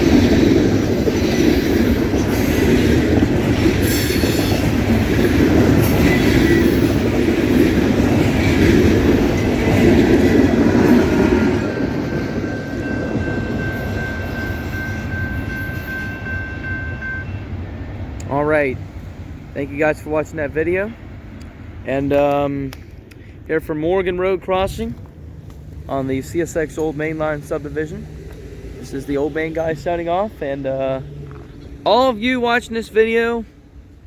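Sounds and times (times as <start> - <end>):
train wheels rumbling and clacking: 0.0 - 34.0
wheel squeal: 3.8 - 7.7.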